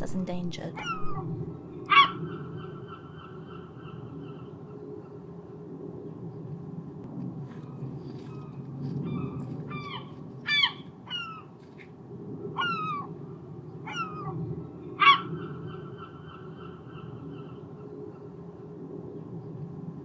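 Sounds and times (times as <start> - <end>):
low background rumble: 0.0 - 1.9
gulls yelping calls: 0.8 - 5.3, 8.5 - 11.6, 12.6 - 13.1, 13.8 - 18.4.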